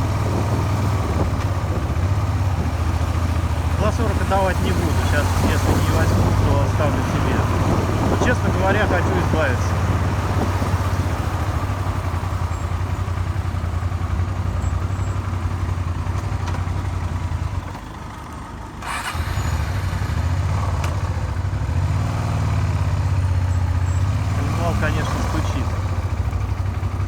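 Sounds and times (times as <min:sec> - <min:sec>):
engine knocking: 0:00.0 - 0:21.4
motorcycle engine running: 0:00.0 - 0:27.0.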